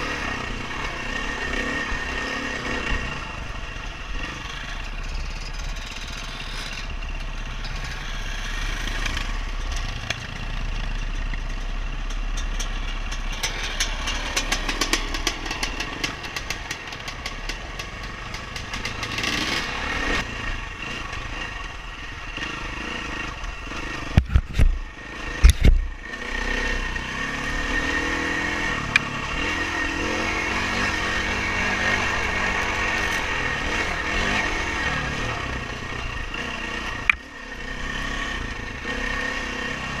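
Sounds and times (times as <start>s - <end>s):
dirt bike engine running: 0.0s - 40.0s
fast rattling clatter: 8.9s - 19.8s.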